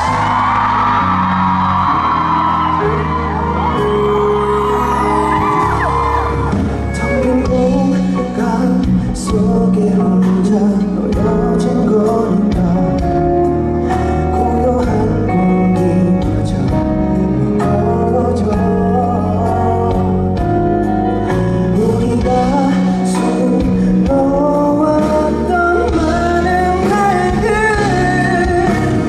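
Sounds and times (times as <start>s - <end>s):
instrumental accompaniment with beat: 0.0s - 29.0s
man singing: 6.8s - 29.0s.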